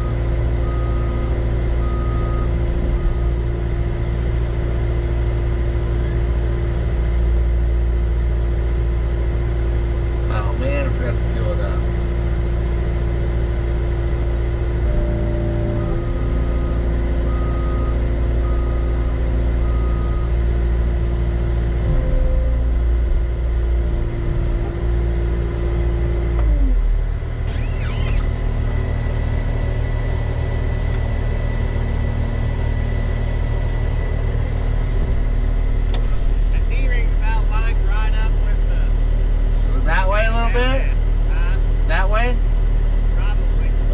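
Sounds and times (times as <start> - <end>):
heavy diesel engine running: 0.0 - 43.9
high squeal: 27.4 - 28.4.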